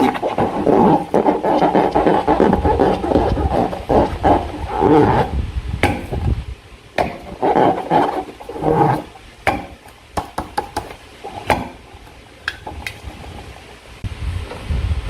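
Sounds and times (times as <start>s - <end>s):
slime squelching: 0.0s - 6.3s, 7.0s - 10.0s
handling rumble: 0.0s - 15.0s.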